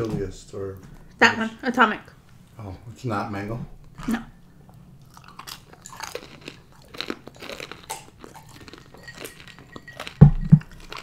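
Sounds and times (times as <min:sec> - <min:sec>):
crunchy chewing: 0:04.0 - 0:11.0.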